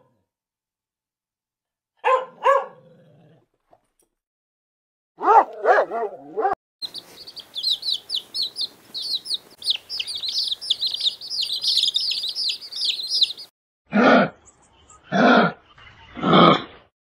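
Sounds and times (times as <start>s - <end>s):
small birds chirping: 6.8s - 13.5s.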